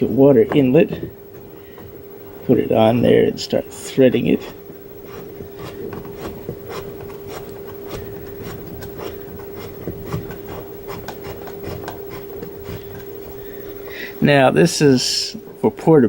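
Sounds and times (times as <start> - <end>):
steady hum: 0.0 - 16.0
hose threads scraping and clicking: 4.6 - 13.8.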